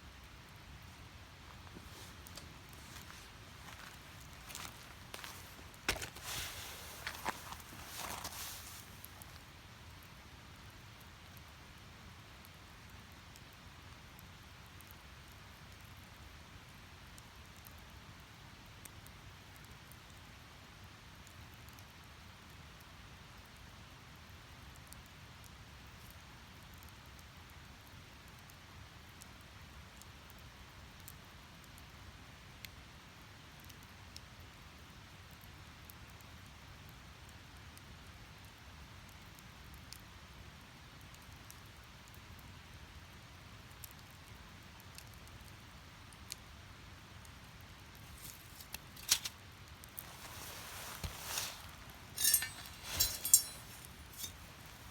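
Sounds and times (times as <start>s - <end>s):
wood fire crackling and popping: 1.5s - 9.4s, 47.9s - 54.9s.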